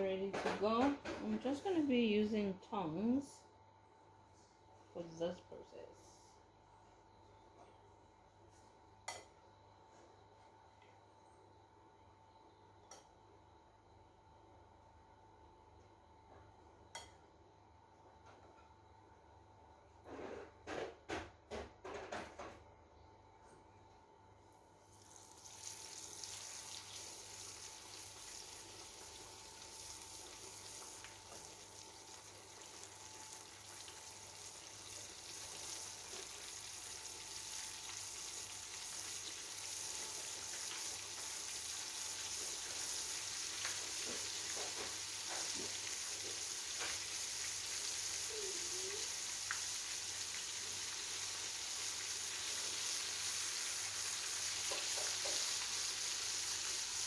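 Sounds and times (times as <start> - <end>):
chicken frying in oil: 24.9 - 57.0.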